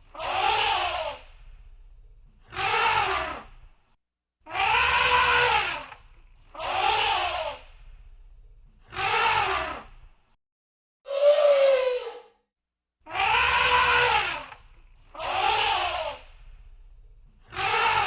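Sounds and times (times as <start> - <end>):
animal calling: 2.5 - 3.4, 4.5 - 7.6, 11.1 - 12.3, 13.1 - 14.6, 17.5 - 18.0.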